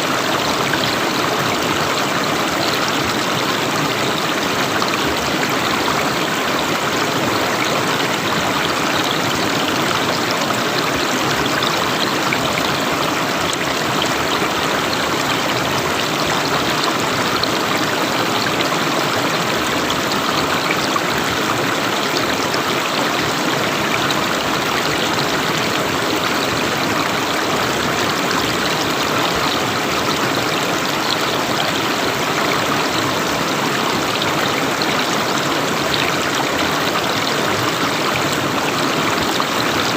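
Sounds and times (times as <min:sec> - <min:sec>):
river water flowing and splashing: 0:00.0 - 0:39.9.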